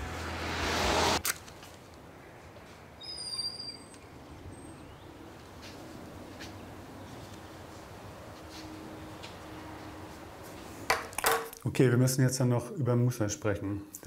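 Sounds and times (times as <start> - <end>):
rising hiss: 0.0 - 1.2
songbird chirps: 3.0 - 8.0.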